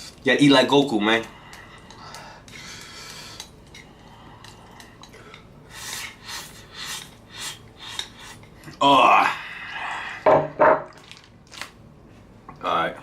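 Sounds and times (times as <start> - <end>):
utensil on bowl: 5.9 - 8.5
person exclaiming: 8.8 - 9.6.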